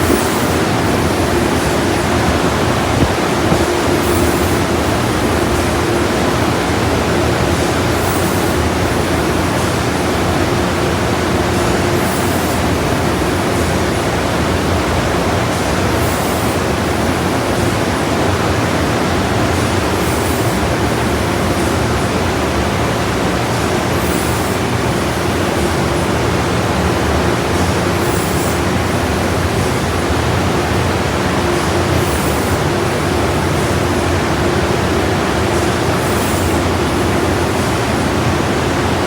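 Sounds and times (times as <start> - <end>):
hiss: 0.0 - 4.6
water spray rushing: 0.0 - 5.2
steady hum: 0.0 - 39.0.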